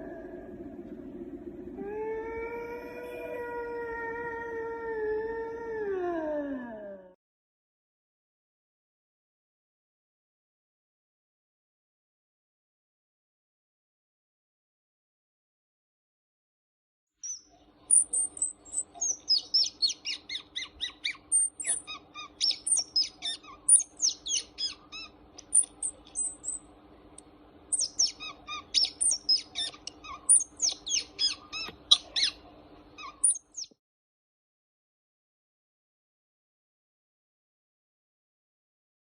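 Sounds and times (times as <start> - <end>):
birds chirping: 17.2 - 26.7, 27.7 - 33.8.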